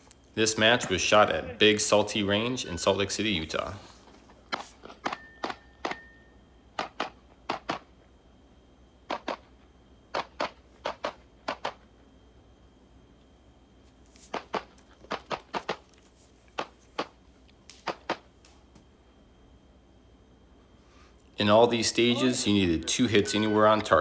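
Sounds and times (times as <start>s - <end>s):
pistol shots: 6.8s - 7.9s, 9.1s - 9.5s.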